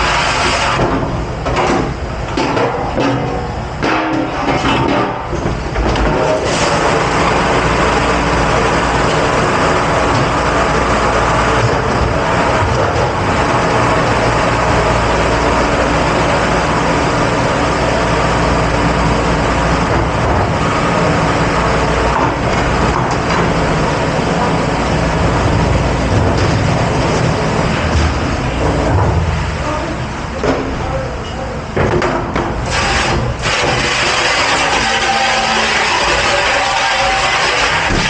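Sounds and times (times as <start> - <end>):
machinery humming: 0.0 - 38.0.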